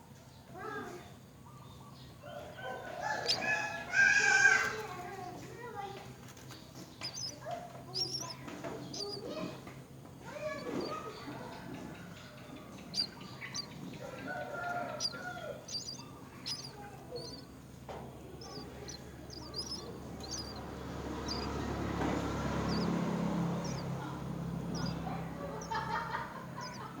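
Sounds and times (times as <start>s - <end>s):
birds chirping: 0.4s - 27.0s
low steady rumble: 11.2s - 27.0s.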